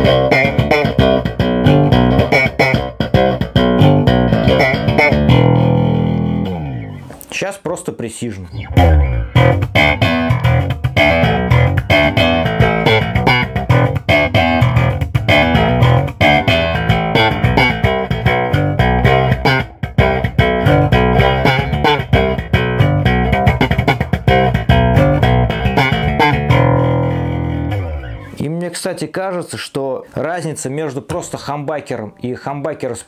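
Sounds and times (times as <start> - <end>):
electric bass plucked notes: 0.0 - 7.2, 8.5 - 28.4.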